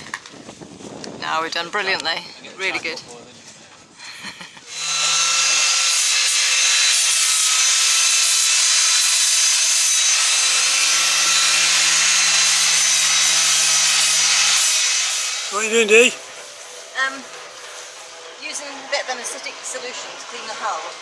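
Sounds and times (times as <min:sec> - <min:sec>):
power sander grinding hiss: 0:04.7 - 0:18.3.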